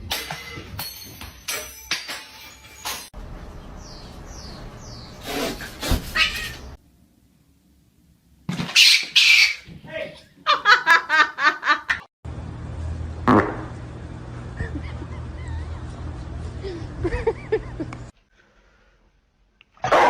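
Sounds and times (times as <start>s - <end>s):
pet animal high-pitched calls: 5.2s - 6.7s.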